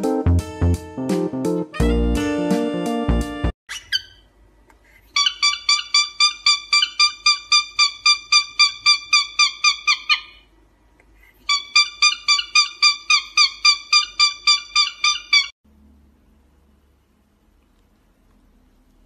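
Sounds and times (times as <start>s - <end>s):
cockatiel whistled chirps: 3.7s - 4.3s, 11.5s - 15.5s.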